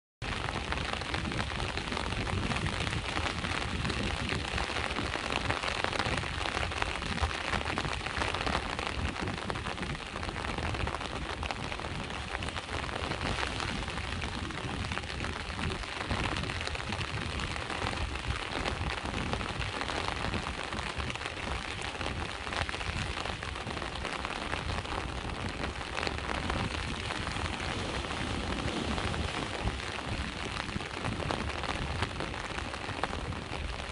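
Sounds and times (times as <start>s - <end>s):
rain pattering on surface: 0.2s - 33.9s
low rumble: 25.2s - 32.5s.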